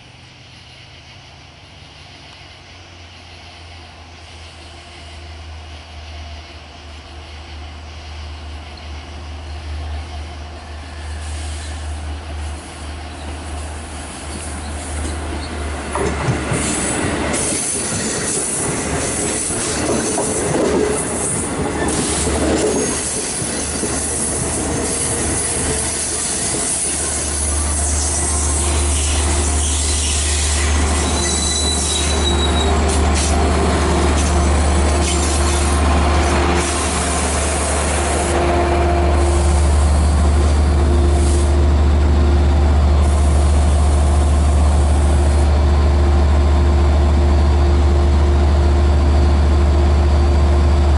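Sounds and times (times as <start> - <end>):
train wheels rolling on rails: 0.0 - 50.9
high wheel squeal: 21.8 - 41.6
diesel engine drone: 32.1 - 50.9.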